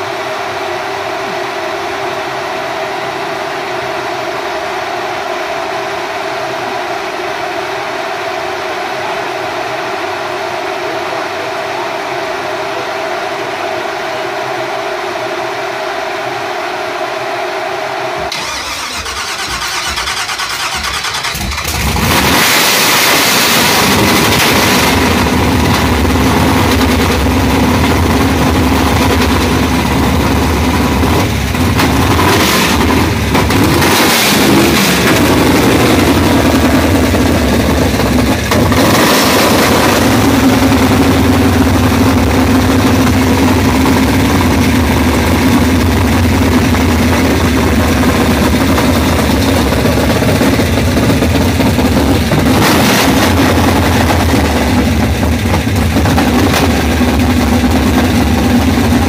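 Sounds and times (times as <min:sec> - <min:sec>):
engine cranking and revving: 0:18.3 - 0:59.0.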